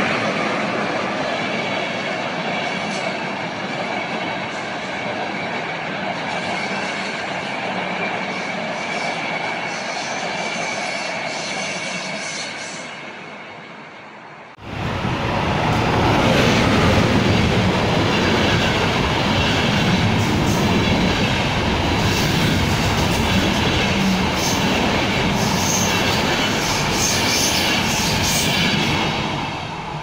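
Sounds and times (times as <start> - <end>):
freight train rolling by: 0.0 - 30.0
passenger coaches wheels on rails: 0.0 - 30.0.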